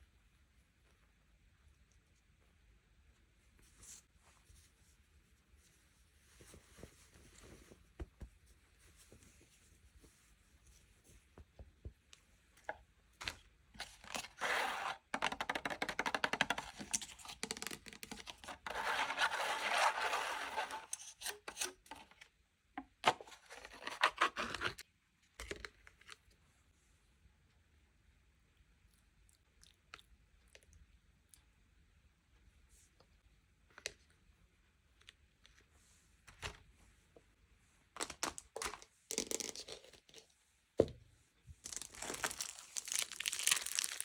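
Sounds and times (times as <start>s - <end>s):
packaging crackling and tearing: 41.7s - 44.0s
packaging rustling: 41.7s - 44.0s.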